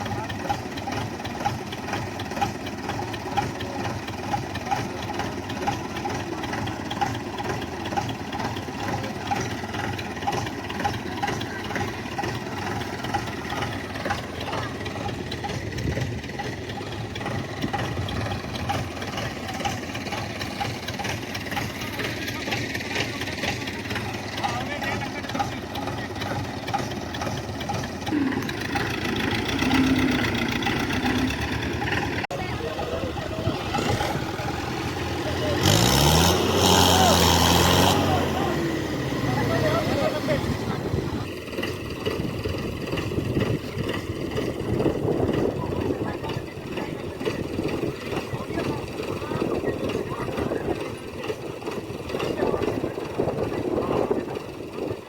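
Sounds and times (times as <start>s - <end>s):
tractor diesel engine droning: 0.0s - 55.0s.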